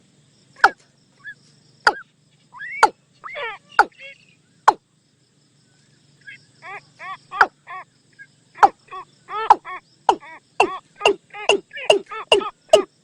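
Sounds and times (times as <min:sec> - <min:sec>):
watercock decoy call: 0:08.6 - 0:12.9.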